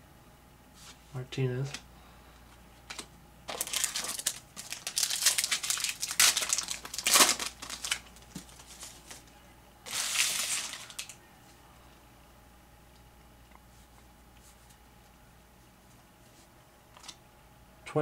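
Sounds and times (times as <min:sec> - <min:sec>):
wrapper crinkling: 0:02.9 - 0:11.2.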